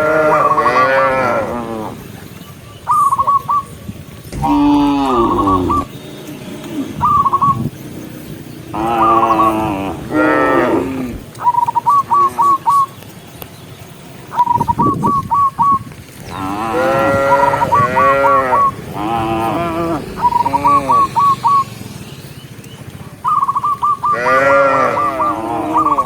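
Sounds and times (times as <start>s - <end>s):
cattle mooing: 0.0s - 2.0s, 4.4s - 5.9s, 8.7s - 11.2s, 16.3s - 21.3s, 24.1s - 26.0s
quick whistled call: 2.6s - 6.0s, 6.7s - 7.8s, 14.3s - 15.9s, 20.1s - 24.2s.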